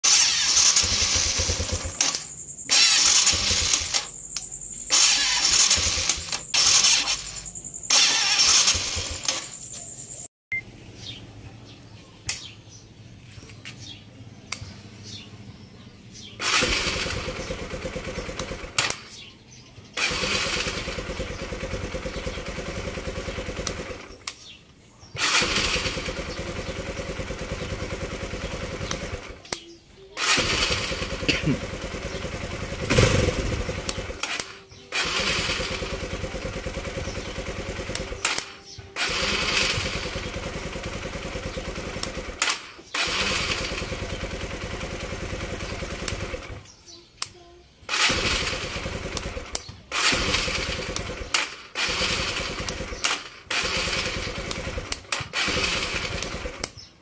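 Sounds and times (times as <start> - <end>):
starter motor cranking: 0.0 - 9.8, 16.4 - 19.3, 19.9 - 24.6, 25.2 - 29.6, 30.2 - 46.7, 47.9 - 56.9
motorcycle engine running: 0.0 - 10.2, 16.2 - 29.5, 30.2 - 46.8, 47.9 - 56.8.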